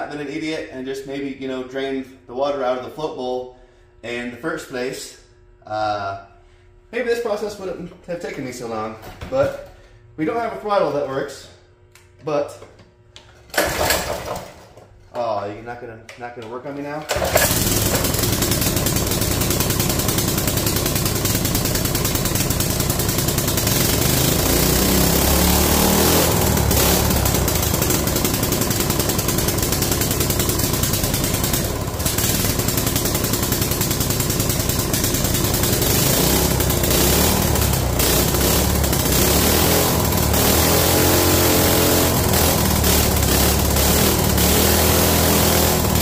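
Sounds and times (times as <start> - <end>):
small engine starting and running: 13.5 - 14.8, 17.1 - 46.0.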